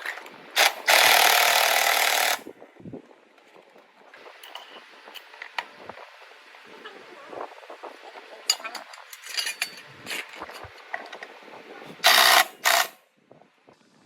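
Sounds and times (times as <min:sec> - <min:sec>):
power tool running: 0:00.6 - 0:02.4, 0:12.0 - 0:13.0
metal parts clicking and knocking: 0:08.5 - 0:11.2.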